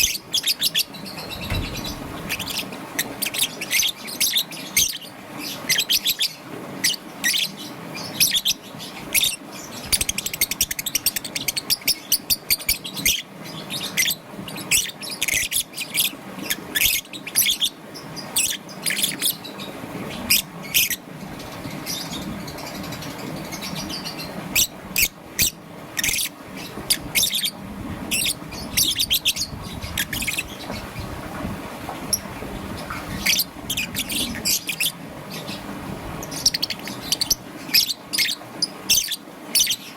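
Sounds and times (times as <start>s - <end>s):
lovebird chirping: 0.0s - 5.1s, 21.9s - 31.0s, 32.8s - 35.6s, 36.2s - 39.9s
low steady hum: 0.0s - 39.9s.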